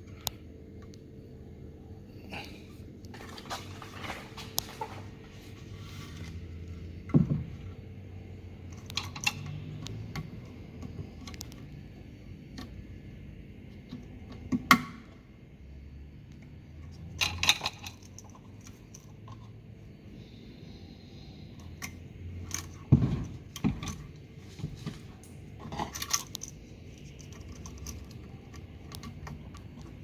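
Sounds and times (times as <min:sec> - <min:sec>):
steady low hum: 0:00.0 - 0:30.0
metal parts clinking and knocking: 0:17.1 - 0:19.4, 0:21.8 - 0:30.0.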